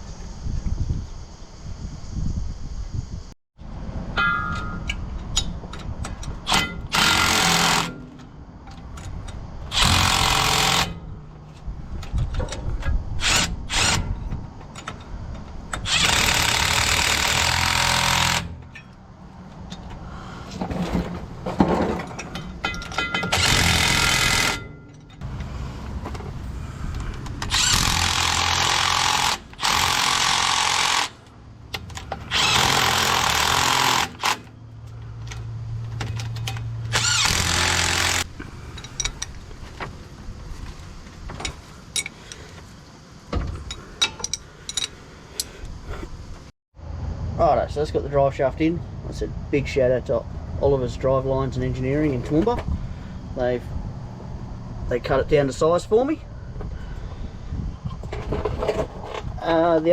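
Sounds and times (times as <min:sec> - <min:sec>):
impact wrench bursts: 0:06.5 - 0:08.2, 0:09.7 - 0:11.1, 0:13.2 - 0:14.2, 0:15.7 - 0:18.9, 0:22.7 - 0:24.8, 0:27.2 - 0:34.6, 0:36.9 - 0:39.2.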